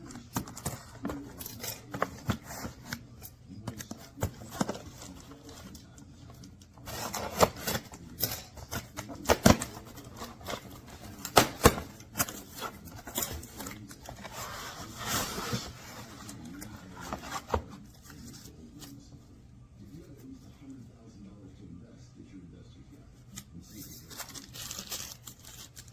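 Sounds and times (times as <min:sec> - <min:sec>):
rustling and scraping: 0:00.0 - 0:20.7.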